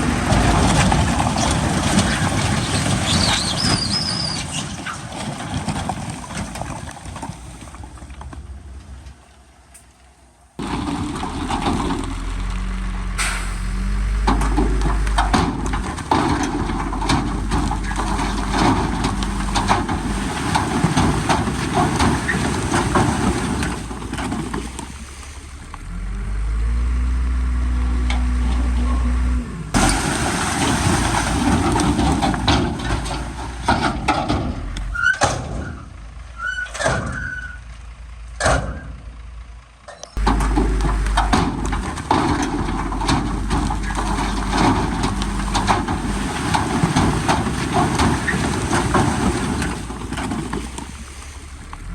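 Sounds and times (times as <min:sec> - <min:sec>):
diesel engines running: 0:00.0 - 0:51.9
short high squeals: 0:02.6 - 0:05.0, 0:34.9 - 0:37.7
machinery knocks: 0:13.8 - 0:24.8, 0:40.2 - 0:50.9.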